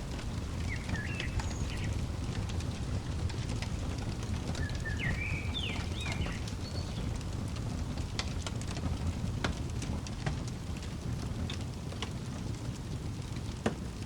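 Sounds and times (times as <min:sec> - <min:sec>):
crackling fire: 0:00.0 - 0:14.0
bird chirping: 0:00.1 - 0:07.4.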